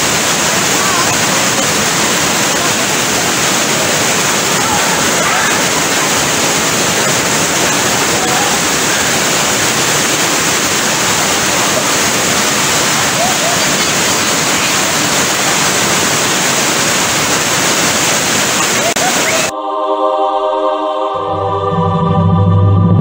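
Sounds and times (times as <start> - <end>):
water rushing over rocks: 0.0 - 19.5
faint voices: 0.4 - 15.9, 18.5 - 19.5.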